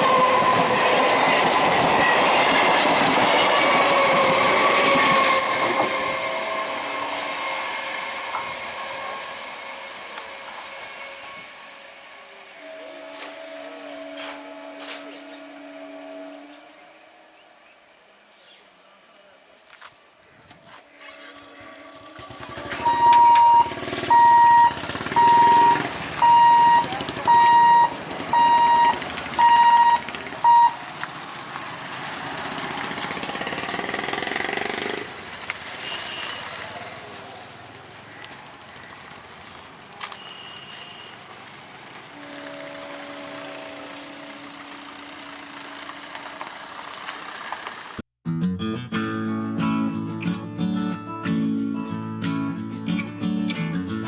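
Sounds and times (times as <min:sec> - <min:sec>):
train horn blasts: 0:00.0 - 0:02.6, 0:03.3 - 0:18.1, 0:20.9 - 0:30.8, 0:35.8 - 0:36.8, 0:40.0 - 0:41.4, 0:42.1 - 0:46.6
train running past: 0:00.0 - 0:18.4, 0:20.9 - 0:48.0.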